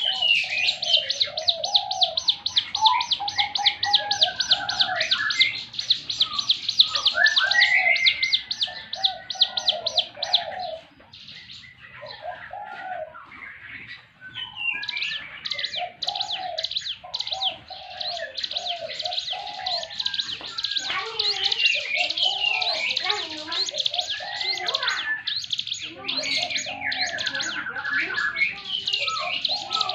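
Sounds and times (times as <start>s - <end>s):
bird singing rapid high notes: 0.0s - 8.6s.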